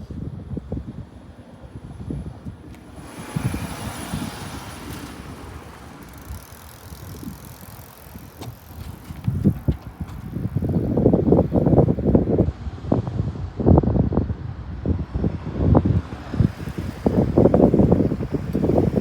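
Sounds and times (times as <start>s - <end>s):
wind buffeting microphone: 0.0s - 19.0s
electric train passing: 1.2s - 9.6s.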